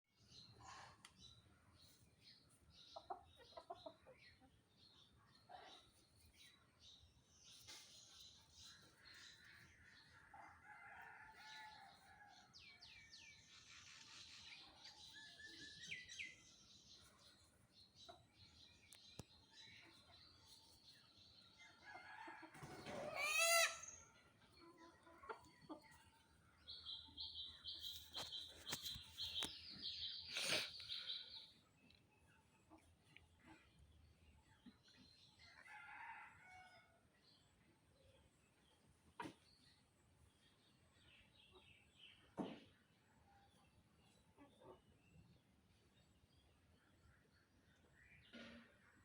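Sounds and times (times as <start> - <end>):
small birds chirping: 23.2 - 35.5.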